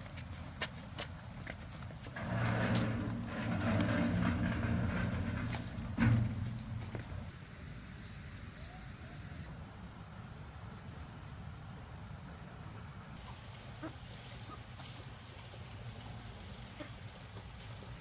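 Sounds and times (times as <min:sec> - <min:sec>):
low rumble: 0:02.2 - 0:07.3.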